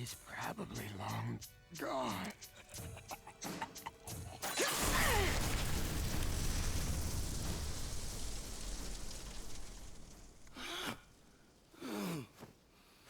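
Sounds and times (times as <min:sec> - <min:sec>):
person sighing or groaning: 0:10.6 - 0:11.0, 0:11.8 - 0:12.4.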